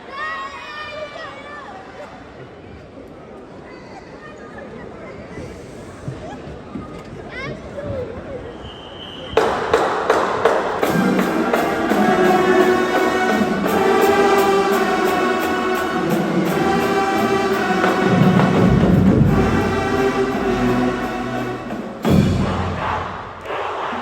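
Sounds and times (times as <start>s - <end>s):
loud ensemble hit: 9.4s - 23.9s
drums playing: 9.4s - 24.0s
marching band brass chords: 9.4s - 24.0s
deep low brass: 10.8s - 24.0s.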